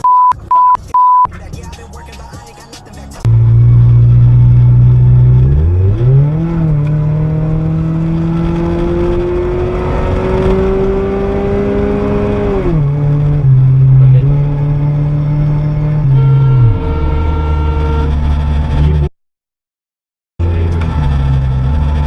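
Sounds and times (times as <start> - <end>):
vehicle engine revving: 1.4 - 19.1, 20.4 - 22.0.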